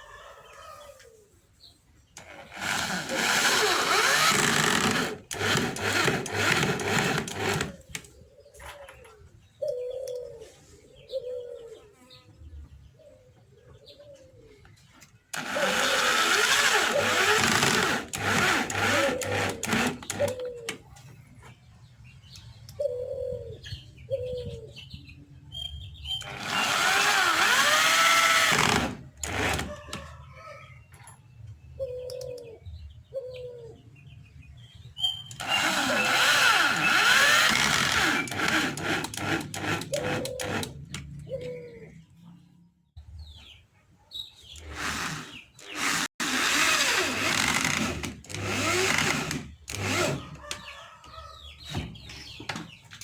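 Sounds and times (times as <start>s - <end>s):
power tool running: 2.2s - 8.0s, 15.3s - 20.4s, 26.2s - 29.7s, 35.3s - 41.0s, 44.6s - 50.3s
doves cooing: 7.8s - 12.0s, 13.0s - 14.7s, 19.0s - 21.0s, 22.7s - 24.8s, 31.8s - 33.9s, 39.9s - 42.2s.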